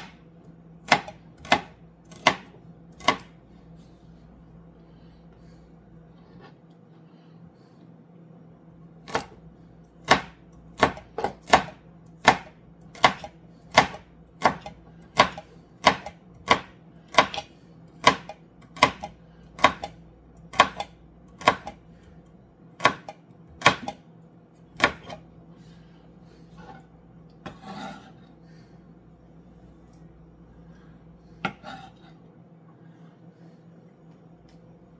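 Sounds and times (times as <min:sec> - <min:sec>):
knife chopping on cutting board: 0:00.8 - 0:03.3, 0:10.0 - 0:21.8, 0:22.8 - 0:24.0, 0:24.8 - 0:25.2.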